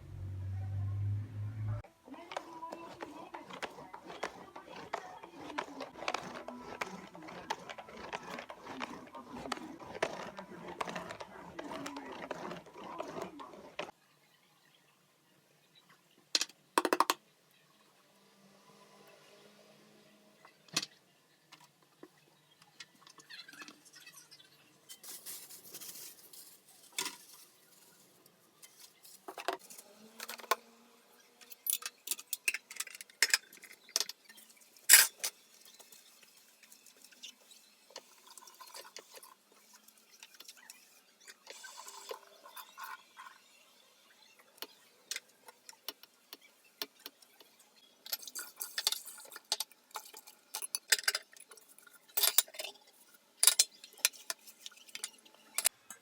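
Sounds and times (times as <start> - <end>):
dishes and cutlery clinking: 48.1 - 52.8.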